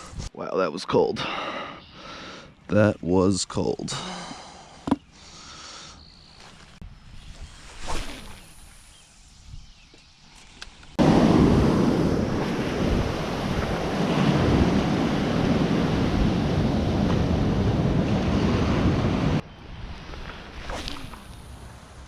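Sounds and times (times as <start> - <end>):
wind rumbling on microphone: 6.8 - 10.0, 11.0 - 22.0
ocean surf washing ashore: 11.0 - 19.4.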